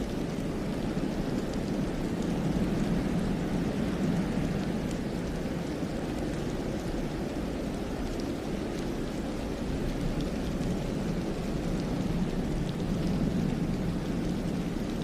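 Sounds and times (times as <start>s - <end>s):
faint ticks: 0.0s - 15.0s
steady low wind: 0.0s - 15.0s.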